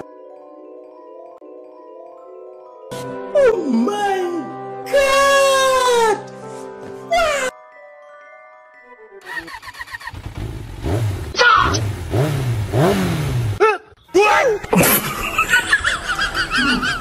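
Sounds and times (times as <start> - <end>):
motorcycle engine revving: 9.2 - 13.6.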